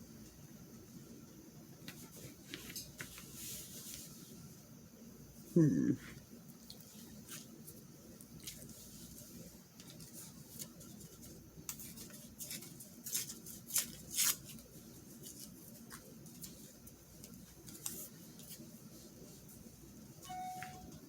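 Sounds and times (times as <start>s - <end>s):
paper rustling and scraping: 8.4s - 18.8s.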